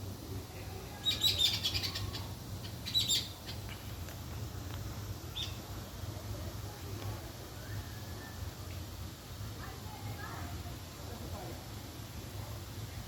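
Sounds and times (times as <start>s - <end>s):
small birds chirping: 0.6s - 4.0s, 5.3s - 5.7s.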